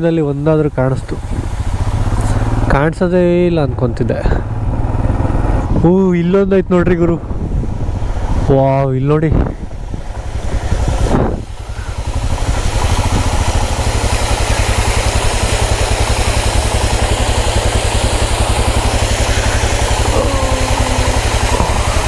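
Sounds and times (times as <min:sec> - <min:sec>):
waterfall hissing: 0:00.0 - 0:03.4, 0:09.8 - 0:22.0
motorcycle engine idling: 0:00.0 - 0:06.6, 0:09.6 - 0:22.0.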